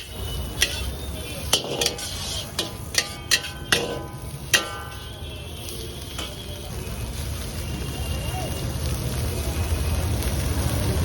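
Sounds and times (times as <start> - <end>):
metal utensil clinking on pan: 0.0 - 6.6.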